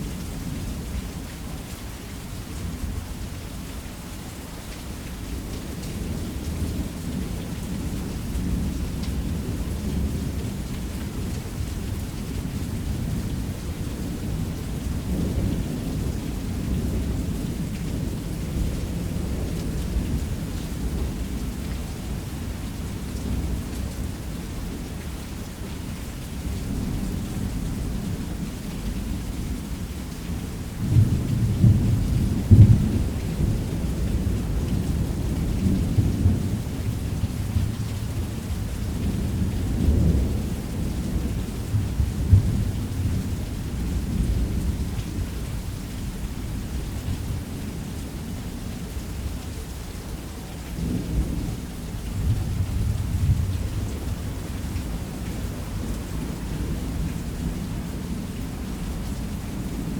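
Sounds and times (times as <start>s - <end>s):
heavy rain on a roof: 0.0s - 59.9s
low rolling thunder: 26.4s - 48.8s, 50.7s - 59.9s.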